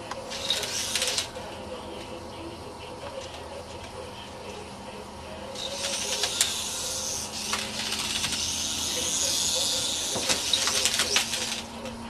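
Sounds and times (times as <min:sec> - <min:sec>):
small rotor motor whirring: 0:00.3 - 0:01.3, 0:05.5 - 0:11.8.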